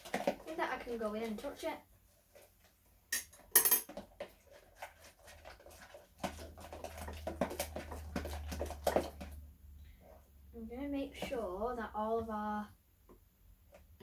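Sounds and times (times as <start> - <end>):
utensils clinking against bowl: 3.2 - 4.0.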